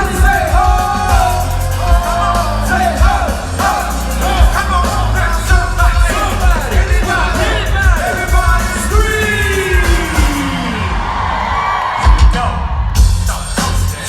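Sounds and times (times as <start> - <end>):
person singing: 0.0 - 11.0
heavy bass beat: 0.0 - 11.2, 12.0 - 14.0.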